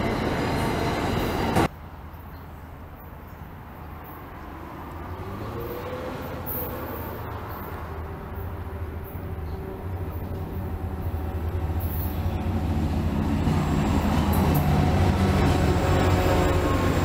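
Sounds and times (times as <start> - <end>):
train rumble: 0.0 - 1.7, 5.8 - 17.0.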